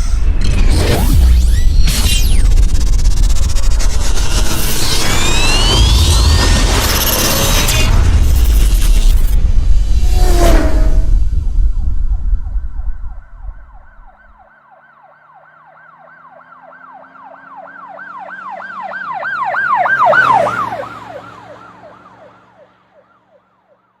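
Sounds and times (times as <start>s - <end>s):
booming whoosh: 0.0s - 14.4s
engine hum: 0.0s - 14.4s
siren wailing: 0.0s - 24.0s.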